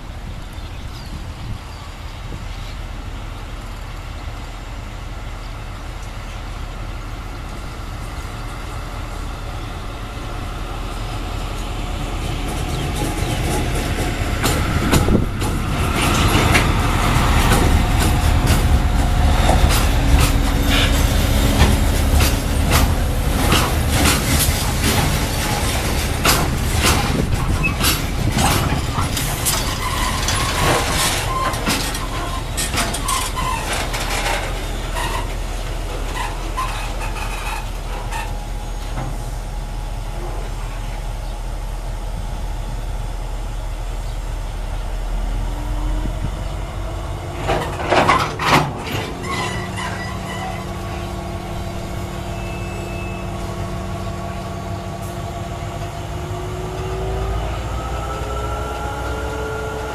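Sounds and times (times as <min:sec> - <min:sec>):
locomotive engine rumble: 0:00.0 - 0:59.9
wagon wheels clattering over rail joints: 0:11.5 - 0:39.2, 0:47.0 - 0:52.3.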